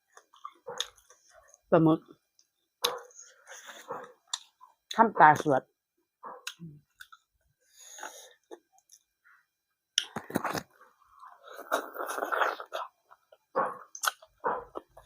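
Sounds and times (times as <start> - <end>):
person chewing food: 0.0 - 1.6, 2.4 - 4.9, 6.3 - 9.2, 10.0 - 15.0
mouth smacks: 13.9 - 14.3.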